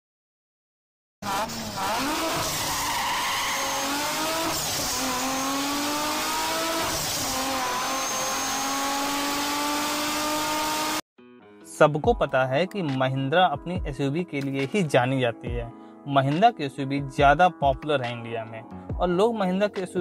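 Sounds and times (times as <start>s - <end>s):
racing car engine accelerating: 1.2s - 11.0s.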